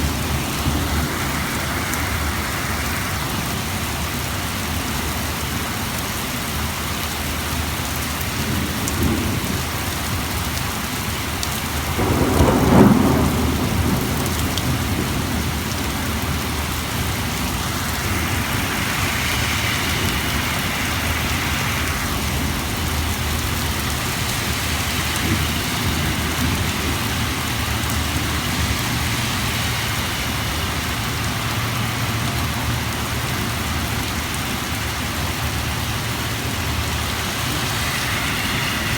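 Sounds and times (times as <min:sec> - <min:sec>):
thunder clap: 0:00.0 - 0:04.3, 0:08.5 - 0:31.8
high hiss: 0:00.0 - 0:05.4, 0:16.7 - 0:32.3, 0:36.6 - 0:38.9
heavy rain pouring: 0:00.0 - 0:38.9.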